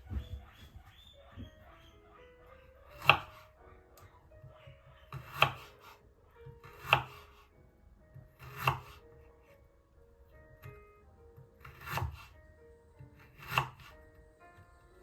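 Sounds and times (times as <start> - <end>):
faint background music: 0.0 - 15.0
knife chopping on cutting board: 2.9 - 3.5, 5.1 - 5.9, 6.6 - 7.3, 8.4 - 9.0, 11.6 - 12.2, 13.2 - 13.9.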